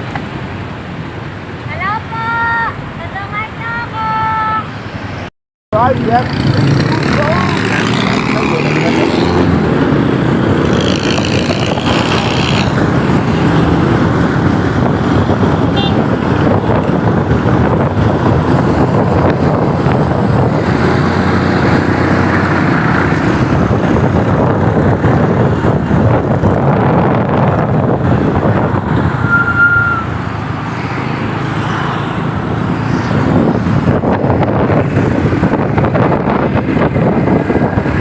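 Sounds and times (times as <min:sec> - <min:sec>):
motorcycle engine and road noise: 0:00.0 - 0:38.0.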